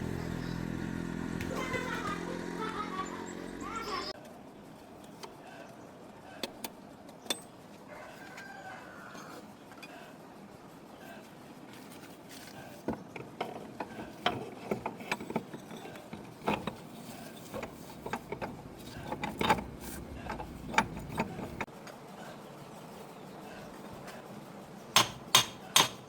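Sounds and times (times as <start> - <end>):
metallic clicks of hand tools: 25.0 - 26.0.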